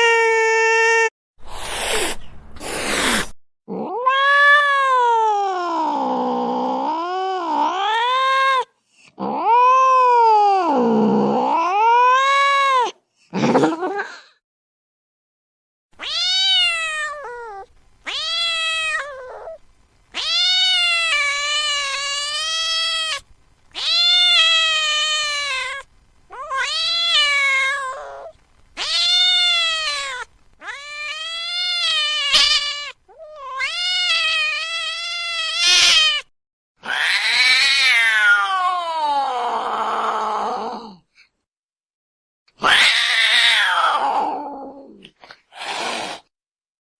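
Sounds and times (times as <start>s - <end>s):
cat wailing meows: 3.7s - 13.0s, 16.0s - 23.2s, 23.8s - 40.6s, 42.6s - 45.0s.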